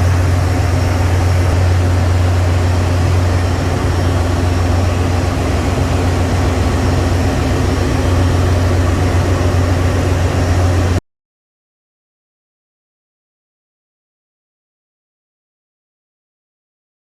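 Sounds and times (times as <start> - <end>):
engine room machinery hum: 0.0 - 11.0.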